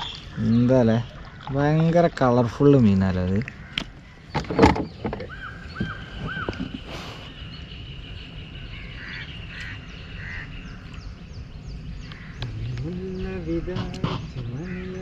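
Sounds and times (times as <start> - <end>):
birds whistling and chirping: 4.1 - 15.0.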